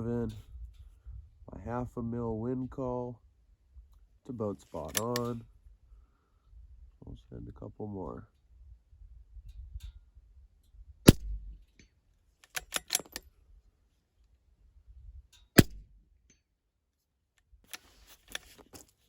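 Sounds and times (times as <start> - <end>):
rifle bolt clicking: 4.9 - 5.3, 12.4 - 13.3
rifle shots: 11.1 - 11.5, 15.6 - 15.9.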